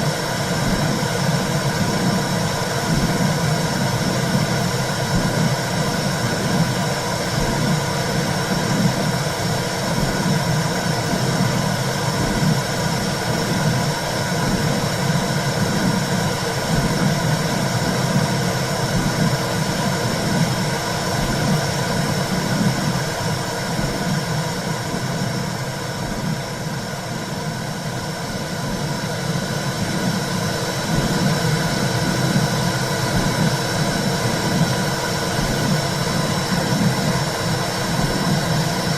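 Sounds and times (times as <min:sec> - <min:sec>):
low whooshing womb sound: 0:00.0 - 0:38.9.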